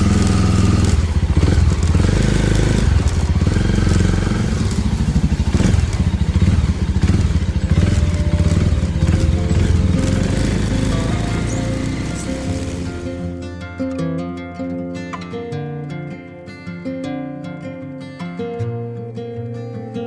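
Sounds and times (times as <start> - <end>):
motorcycle engine pulling away: 0.0 - 13.8.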